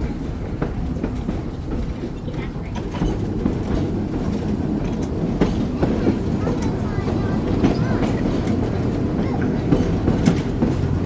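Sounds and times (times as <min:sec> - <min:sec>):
trolley wheels and motors rumbling: 0:00.0 - 0:11.0.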